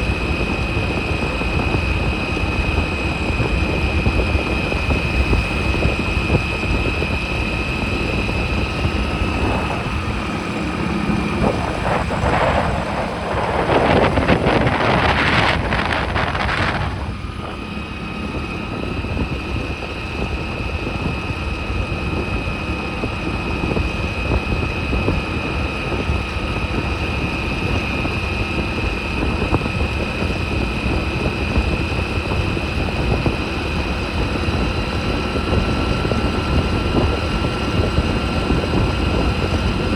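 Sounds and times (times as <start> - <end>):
high whine: 0.0 - 25.2
motorcycle running: 0.0 - 39.9
wind buffeting microphone: 0.0 - 39.9
loud rushing noise: 7.8 - 18.1.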